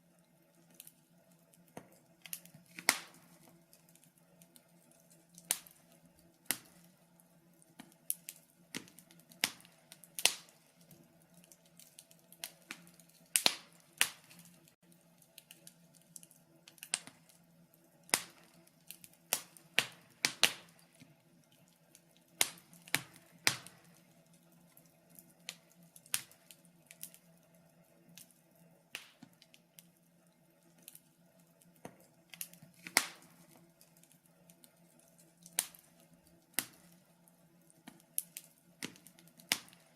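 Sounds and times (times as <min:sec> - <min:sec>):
faint steady hum: 0:00.0 - 0:39.9
wood fire crackling and popping: 0:00.0 - 0:39.9.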